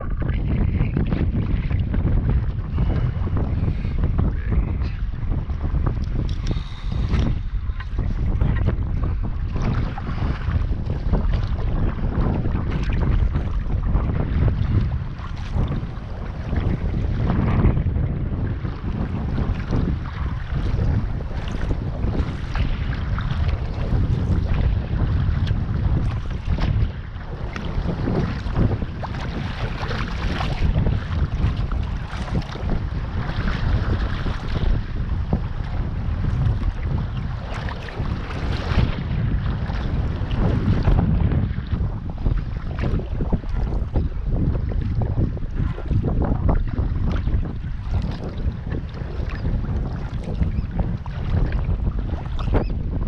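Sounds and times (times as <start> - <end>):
water splashing and lapping: 0.0 - 52.8
wind buffeting microphone: 0.0 - 53.0.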